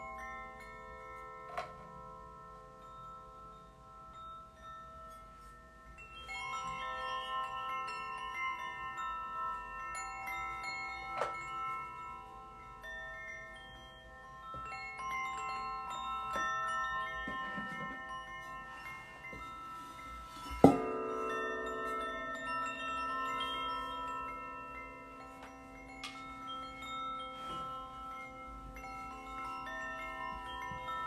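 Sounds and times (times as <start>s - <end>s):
tuned metal percussion notes: 14.4s - 31.0s.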